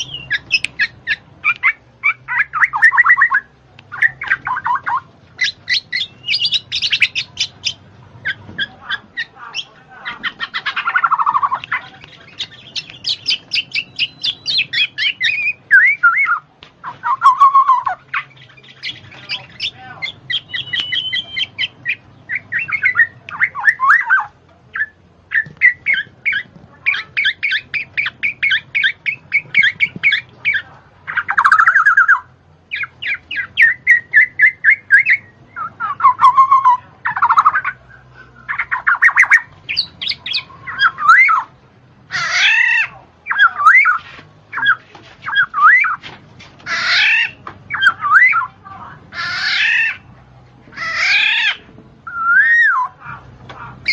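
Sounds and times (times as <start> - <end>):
bird singing and calling: 0.0 - 53.9.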